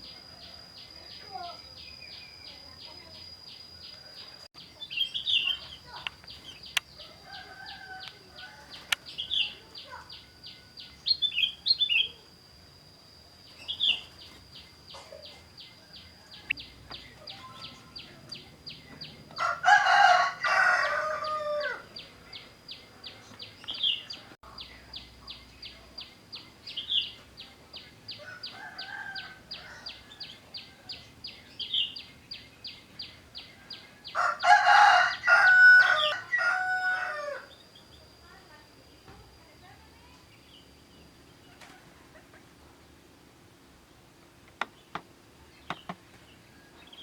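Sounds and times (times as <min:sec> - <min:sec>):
bird chirps: 0:00.0 - 0:12.3, 0:13.4 - 0:19.5, 0:21.2 - 0:36.2
rooster crowing: 0:07.0 - 0:08.8, 0:19.4 - 0:21.9, 0:28.2 - 0:31.0, 0:33.6 - 0:37.5.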